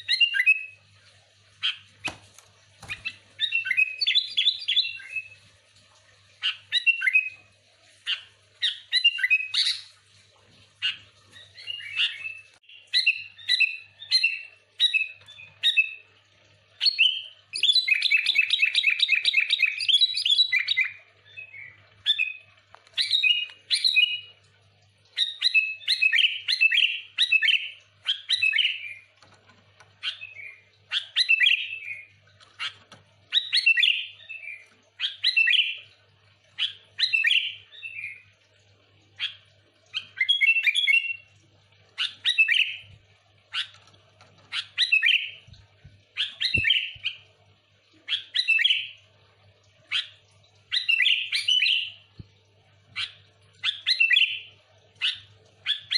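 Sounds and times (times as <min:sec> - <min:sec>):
bulbul chirping song: 0:44.5 - 0:45.5, 0:46.2 - 0:47.3, 0:49.9 - 0:52.1, 0:53.0 - 0:55.9.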